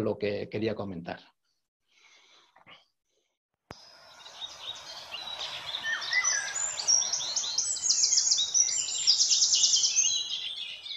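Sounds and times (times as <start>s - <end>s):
birds chirping and trilling: 3.8s - 10.9s.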